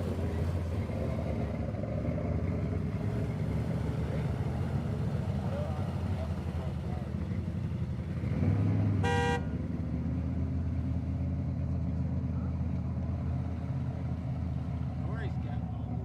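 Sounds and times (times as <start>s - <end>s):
truck engine rumbling: 0.0s - 16.0s
short horn toot: 9.0s - 9.5s.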